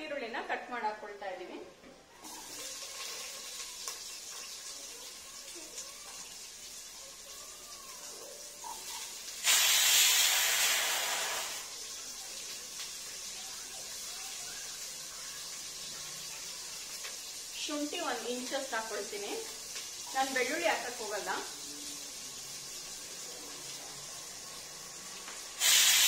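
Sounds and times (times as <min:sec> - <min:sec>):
spices sizzling in hot oil: 0:02.1 - 0:26.0
onion dropped into oil sizzling: 0:02.2 - 0:04.8.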